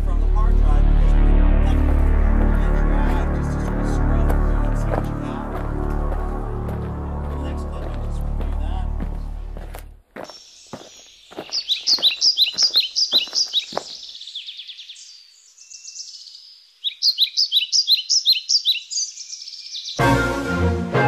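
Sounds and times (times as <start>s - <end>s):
bird chirping high notes: 10.3s - 20.8s.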